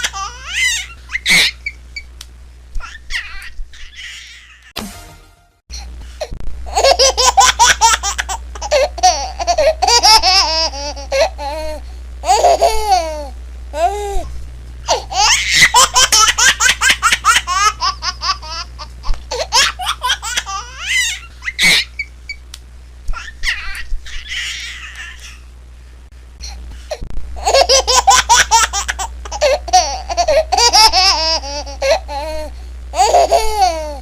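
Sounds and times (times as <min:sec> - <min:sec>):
baby laughing and squealing: 0:00.0 - 0:01.8, 0:02.8 - 0:04.7, 0:06.7 - 0:13.9, 0:14.9 - 0:22.1, 0:23.1 - 0:25.4, 0:27.4 - 0:34.0
steady low hum: 0:00.0 - 0:34.0.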